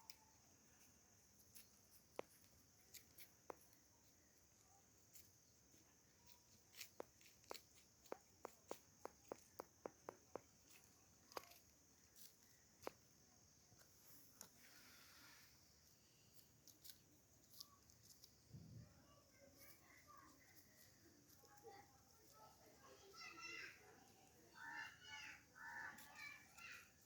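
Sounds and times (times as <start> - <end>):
sharp taps: 6.8 - 11.6.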